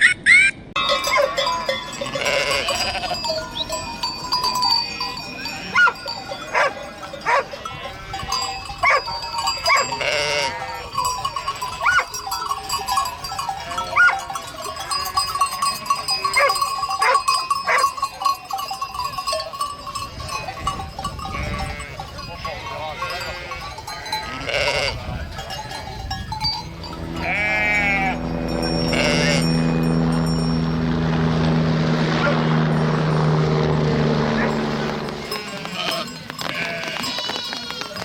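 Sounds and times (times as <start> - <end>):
livestock bleating: 0.8 - 3.6, 6.6 - 11.0, 13.4 - 14.1, 21.3 - 25.3, 26.8 - 30.0, 34.4 - 38.0.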